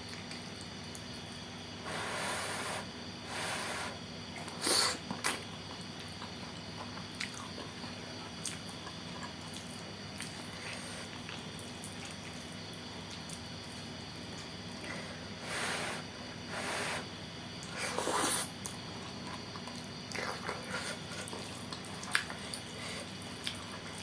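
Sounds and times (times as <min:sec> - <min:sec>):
room hum: 0:00.0 - 0:24.0
wet chewing: 0:17.6 - 0:24.0
person slurping noodles: 0:17.7 - 0:18.6.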